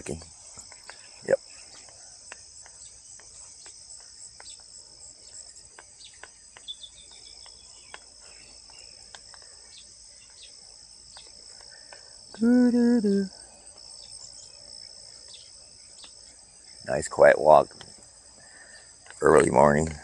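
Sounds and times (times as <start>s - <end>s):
bird chirps: 0.0s - 17.1s
crickets trilling: 0.0s - 20.0s
faint clicks: 5.7s - 9.6s, 11.1s - 12.4s.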